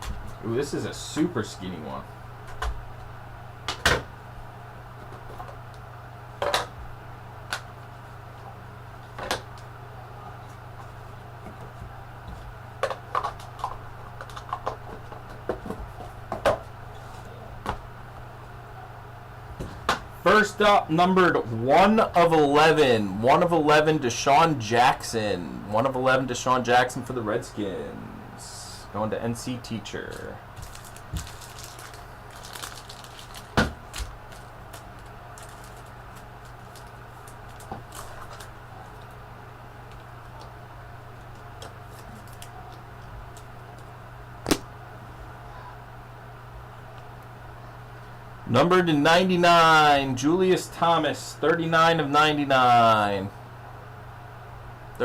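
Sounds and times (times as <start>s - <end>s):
steady low hum: 0.0s - 55.0s
cards and packaging handled: 30.1s - 39.1s, 41.3s - 43.9s.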